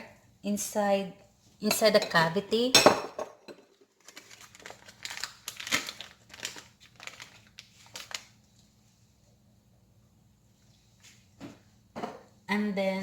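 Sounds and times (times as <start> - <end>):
wrapper crinkling: 3.9 - 8.7.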